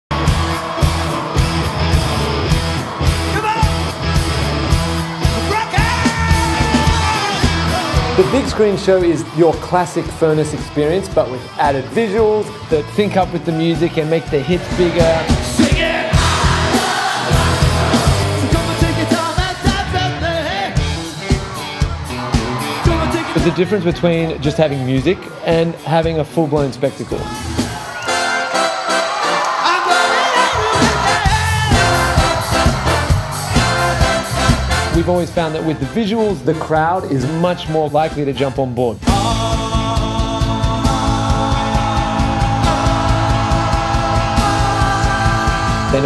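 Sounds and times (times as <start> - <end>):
steady drum beat: 0.1 - 28.0, 30.6 - 38.0, 39.0 - 46.0
live rock band music: 0.1 - 46.0
person singing: 39.0 - 46.0.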